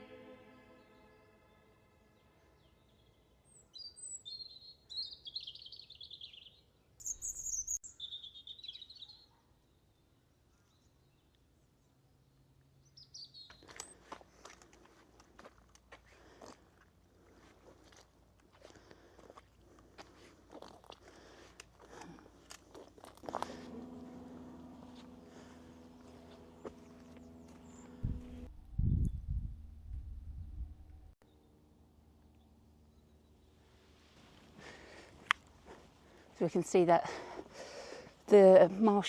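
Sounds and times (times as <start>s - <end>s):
small birds chirping: 2.6s - 9.8s, 12.8s - 14.5s, 19.8s - 28.5s
footsteps crunching on a path: 13.4s - 28.5s.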